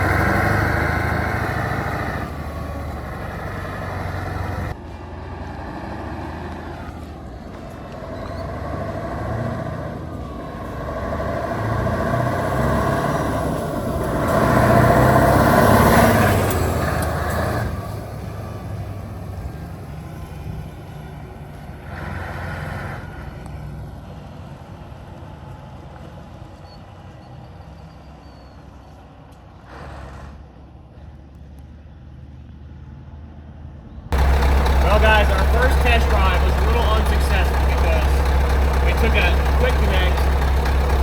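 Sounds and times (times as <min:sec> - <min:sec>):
truck diesel engine running: 0:00.0 - 0:23.3, 0:34.2 - 0:41.0.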